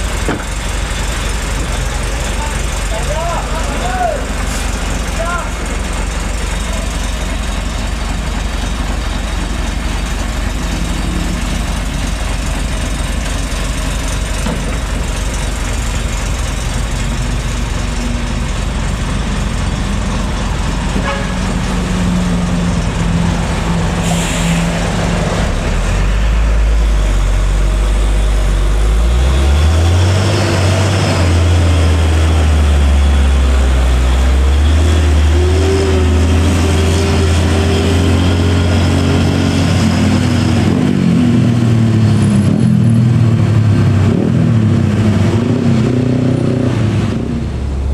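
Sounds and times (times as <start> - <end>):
diesel truck engine labouring: 0.0 - 47.9
air brake hiss: 24.0 - 24.8.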